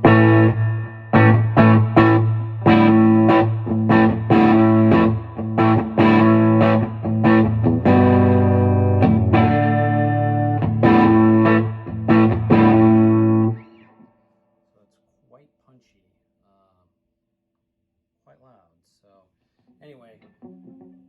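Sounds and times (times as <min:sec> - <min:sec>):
distorted electric guitar chords: 0:00.0 - 0:14.0, 0:20.3 - 0:21.0.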